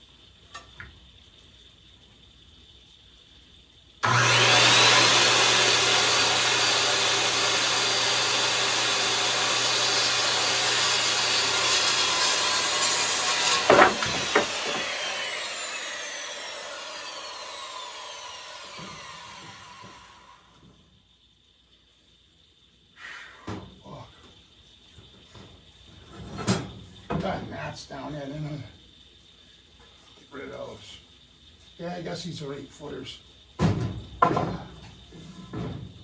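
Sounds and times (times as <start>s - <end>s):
circular saw cutting lumber: 4.0s - 20.7s
saw blade whining down: 4.0s - 20.7s
sharp knocks: 13.4s - 14.9s.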